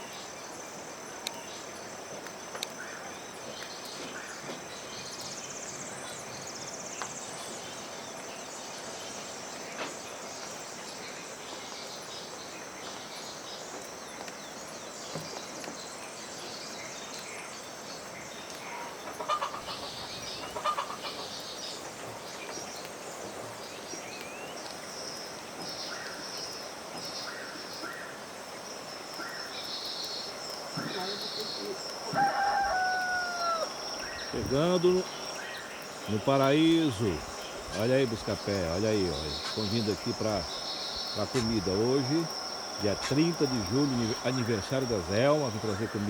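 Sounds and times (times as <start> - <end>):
high insect drone: 0.0 - 46.0
domestic fowl calling: 18.6 - 21.5, 30.8 - 44.3.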